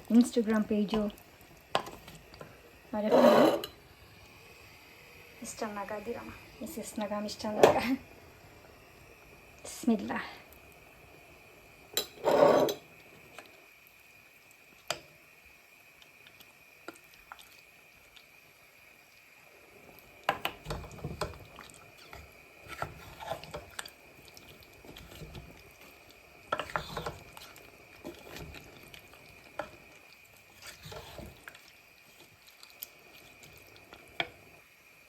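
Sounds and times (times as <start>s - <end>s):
spoon stirring curry in pot: 0.6s - 3.8s, 20.2s - 34.4s.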